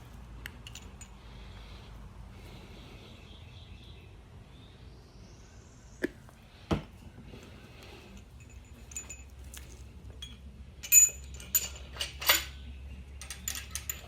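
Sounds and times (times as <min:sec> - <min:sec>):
metal ringing clinks: 0:00.6 - 0:01.3, 0:08.0 - 0:14.0.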